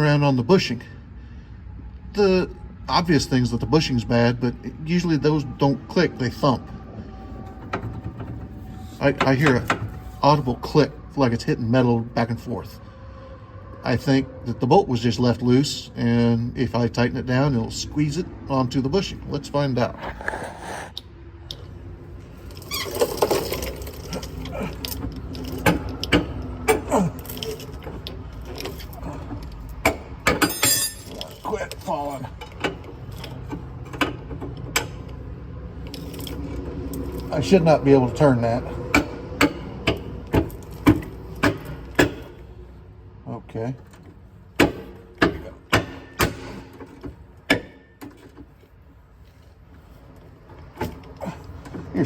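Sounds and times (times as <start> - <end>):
metal clanks of hand tools: 29.8 - 31.6, 38.9 - 42.4, 43.9 - 48.5.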